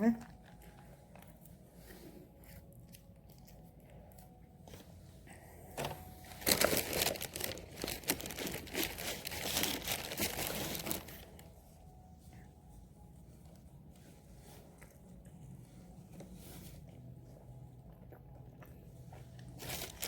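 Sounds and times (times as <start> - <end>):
food packaging crinkling and tearing: 5.8 - 11.6, 19.4 - 20.0.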